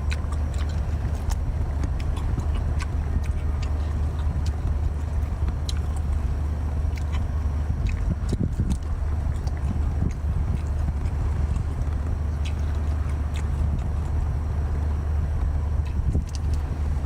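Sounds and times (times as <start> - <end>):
crunching and chewing food: 0.0 - 17.0
low engine hum: 0.0 - 17.0.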